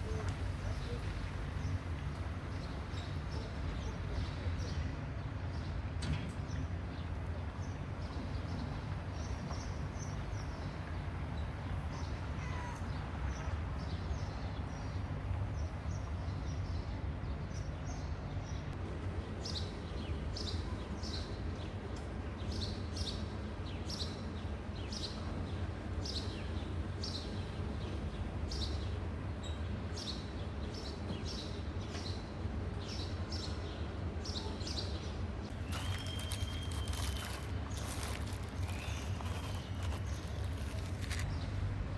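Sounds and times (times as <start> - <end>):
small birds chirping: 32.8 - 41.9
low background rumble: 35.2 - 41.9.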